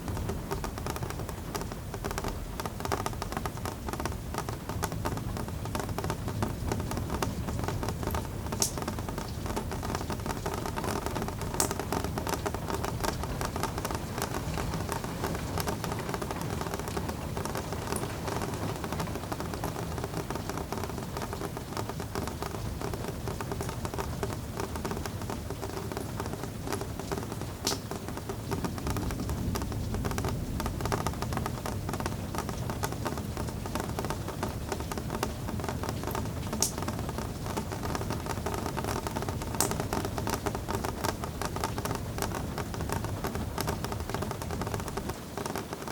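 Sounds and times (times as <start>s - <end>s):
rain patter: 0.0s - 45.9s.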